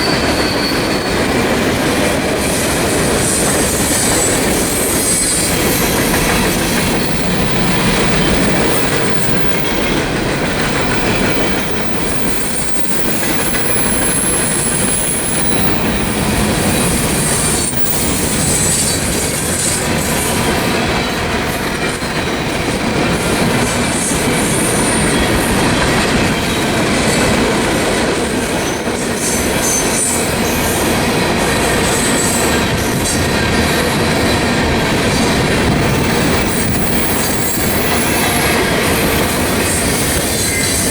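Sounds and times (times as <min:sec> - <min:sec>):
high-pitched wheel squeal: 0:00.0 - 0:01.5, 0:02.5 - 0:09.9, 0:36.0 - 0:40.9
train wheels clattering on rails: 0:00.0 - 0:40.9.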